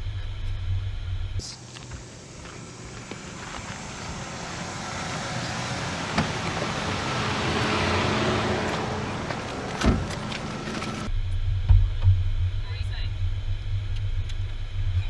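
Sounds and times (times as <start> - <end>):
car passing by: 3.0 - 11.1.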